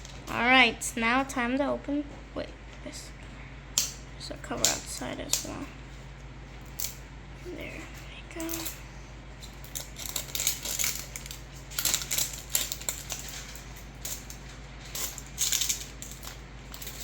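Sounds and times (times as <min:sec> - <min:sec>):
plastic pieces rattling and clicking: 0:09.4 - 0:17.0.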